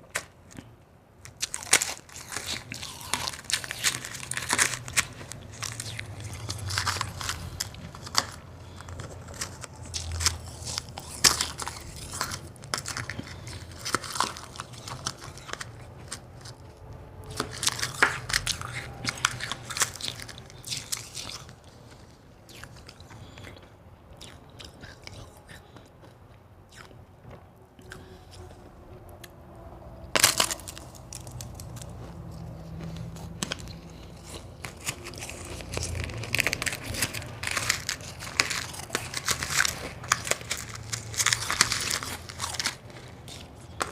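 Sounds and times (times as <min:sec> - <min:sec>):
chewing crunchy ice: 0:00.0 - 0:29.4, 0:30.0 - 0:43.9
ice cracking loudly: 0:01.3 - 0:15.7, 0:30.2 - 0:31.9, 0:34.7 - 0:43.9.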